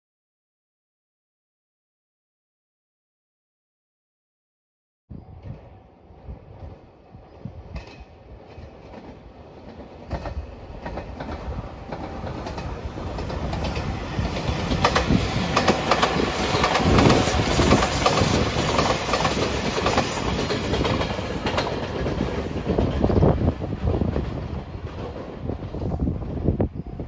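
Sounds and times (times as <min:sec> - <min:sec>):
electric train passing: 0:05.1 - 0:27.0
wheels clacking over rail joints: 0:07.7 - 0:25.8.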